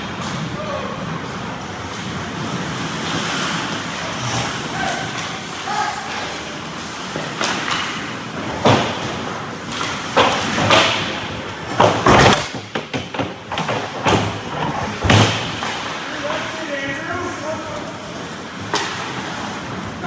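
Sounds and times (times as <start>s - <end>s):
ice rink noise: 0.0s - 20.0s
hockey knocks and thuds: 6.1s - 17.0s, 18.6s - 19.8s.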